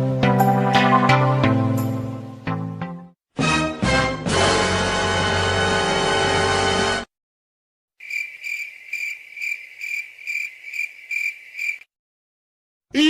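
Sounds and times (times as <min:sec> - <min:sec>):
music: 0:00.0 - 0:07.1
cricket chirping: 0:08.0 - 0:11.9.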